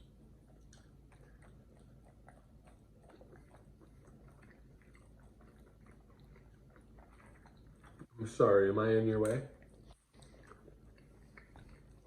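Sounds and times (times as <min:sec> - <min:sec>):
chewing with crunches: 0:00.0 - 0:12.0.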